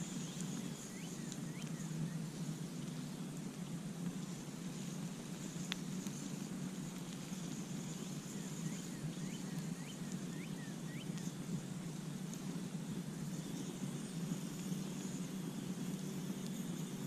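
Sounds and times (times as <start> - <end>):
bird chirping: 0.0 - 2.4, 7.2 - 11.4
campfire crackling: 0.0 - 17.0.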